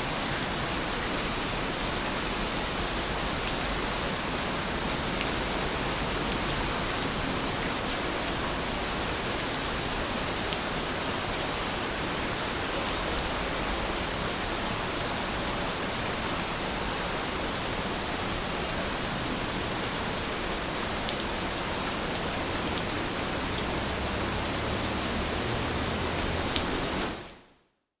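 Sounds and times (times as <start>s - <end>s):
steady rain falling: 0.0s - 27.5s.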